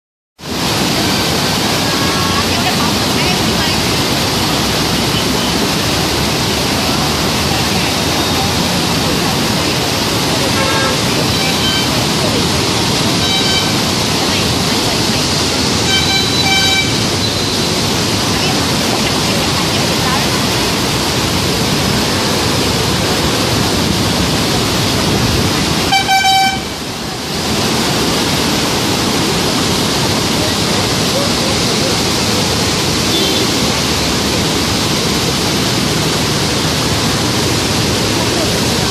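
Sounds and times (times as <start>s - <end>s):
floodwater rushing: 0.4s - 38.9s
horn toot: 10.4s - 12.2s, 13.1s - 13.9s, 15.8s - 17.8s, 25.8s - 26.8s, 33.1s - 33.7s.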